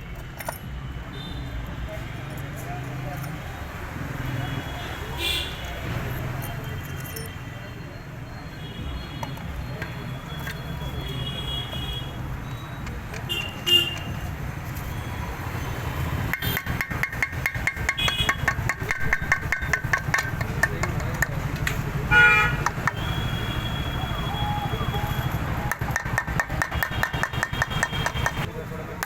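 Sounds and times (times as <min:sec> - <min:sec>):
street traffic noise: 0:00.0 - 0:29.0
vehicle horn honking: 0:04.6 - 0:05.7, 0:13.3 - 0:14.2, 0:22.1 - 0:25.7
fast even ticking: 0:16.2 - 0:21.6.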